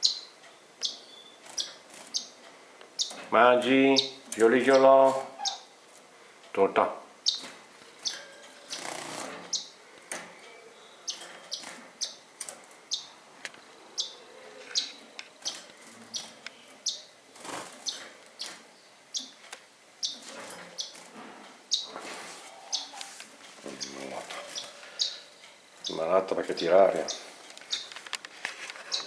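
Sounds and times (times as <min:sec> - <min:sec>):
small birds chirping: 0:00.0 - 0:28.1, 0:28.8 - 0:29.0
rustling: 0:20.2 - 0:25.6, 0:26.8 - 0:29.0.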